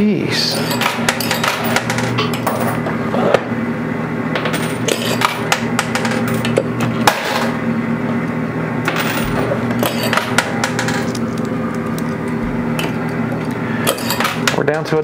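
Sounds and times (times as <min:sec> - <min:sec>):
arcade machine hum: 0:00.0 - 0:15.0
coins clinking against metal: 0:00.5 - 0:02.8, 0:04.4 - 0:06.5, 0:08.9 - 0:11.3, 0:13.8 - 0:14.6.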